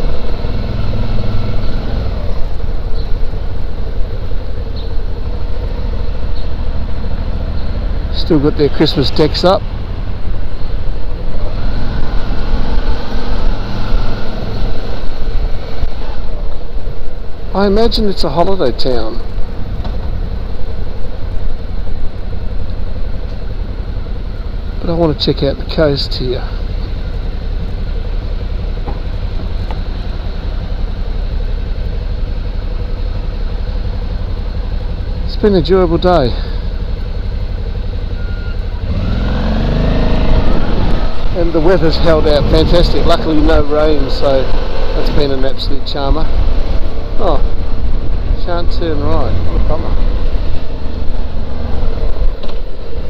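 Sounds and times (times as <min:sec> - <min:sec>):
motorcycle engine running: 0:00.0 - 0:53.0
wind and road noise: 0:00.0 - 0:53.0
wind rumble on microphone: 0:40.1 - 0:43.3, 0:46.0 - 0:53.0.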